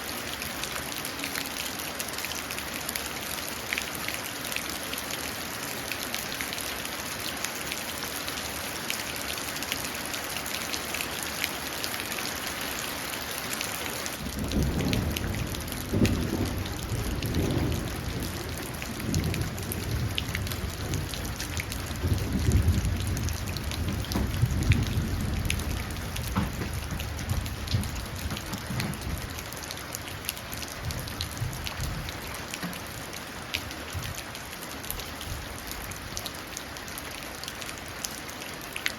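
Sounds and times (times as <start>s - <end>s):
rain pattering into puddles: 0.0s - 38.9s
rolling thunder: 14.2s - 29.5s, 30.6s - 32.1s.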